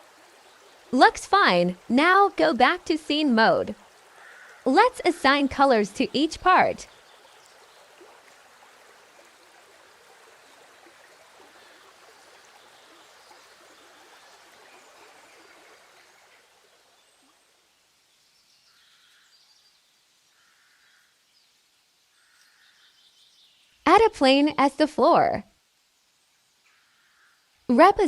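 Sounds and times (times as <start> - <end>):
faint background hiss: 0.0 - 28.0.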